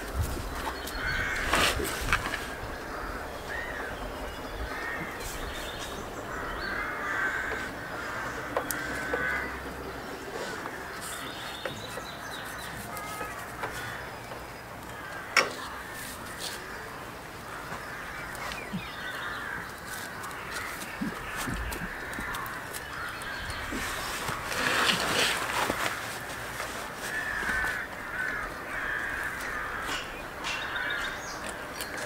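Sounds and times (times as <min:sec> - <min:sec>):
birds calling: 0:00.0 - 0:32.0.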